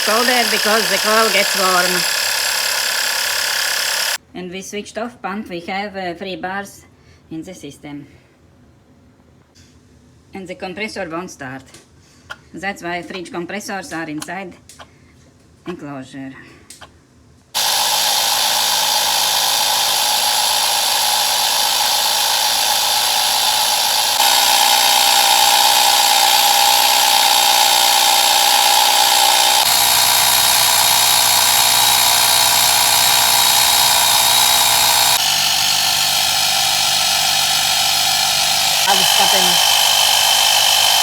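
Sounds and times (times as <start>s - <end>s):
air compressor motor whine: 0.0s - 4.2s, 17.6s - 41.0s.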